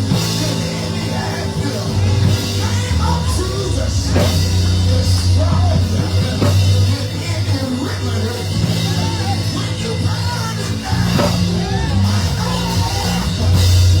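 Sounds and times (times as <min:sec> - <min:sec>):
bass chords: 0:00.0 - 0:14.0
church band playing: 0:00.0 - 0:14.0
drums: 0:00.0 - 0:14.0
voices singing and calling out: 0:00.0 - 0:14.0.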